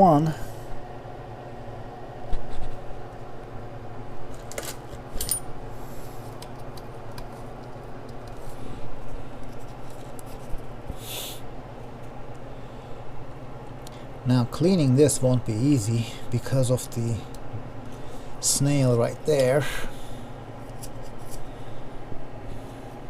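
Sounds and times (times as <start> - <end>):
metal tools clinking: 4.5 - 5.5.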